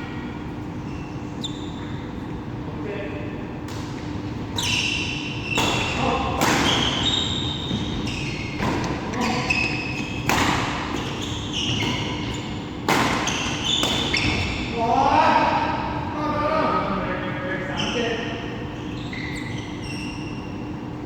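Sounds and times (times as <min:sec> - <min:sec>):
shoes squeaking on court: 0:00.8 - 0:02.2, 0:04.0 - 0:14.7, 0:17.6 - 0:20.8
racket striking shuttlecock: 0:10.2 - 0:11.1, 0:12.8 - 0:14.1.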